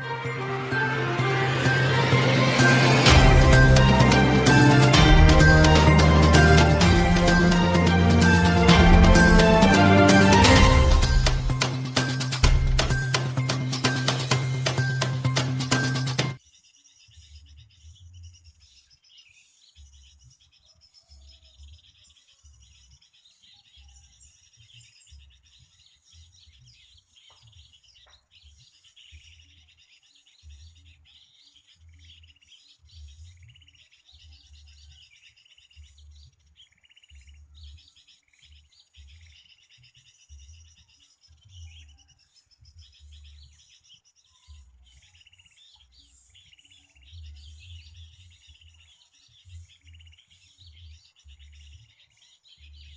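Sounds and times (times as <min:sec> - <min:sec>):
low rumble: 0:01.2 - 0:09.8
small birds chirping: 0:10.6 - 0:52.9.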